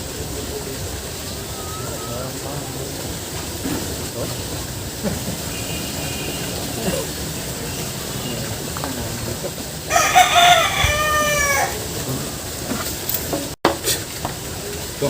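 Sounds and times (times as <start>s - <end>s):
rooster crowing: 9.9s - 11.8s.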